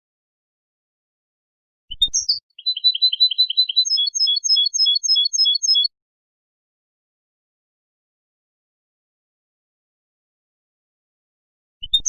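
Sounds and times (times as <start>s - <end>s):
goldfinch song: 1.9s - 5.9s.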